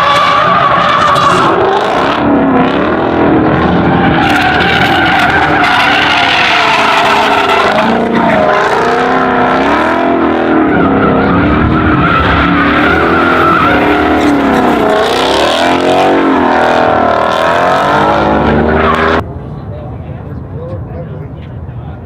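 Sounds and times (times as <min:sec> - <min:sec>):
car engine revving: 0:00.0 - 0:19.2
tyre squeal: 0:10.5 - 0:16.5.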